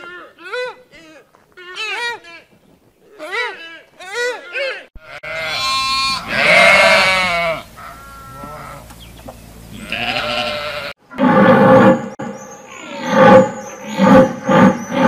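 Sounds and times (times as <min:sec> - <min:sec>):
sheep bleating: 0:03.1 - 0:08.9, 0:09.7 - 0:11.0.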